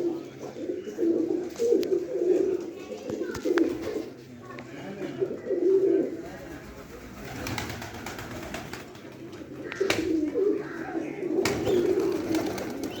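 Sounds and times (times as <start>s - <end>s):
pigeons cooing: 0.0s - 4.3s, 4.9s - 13.0s.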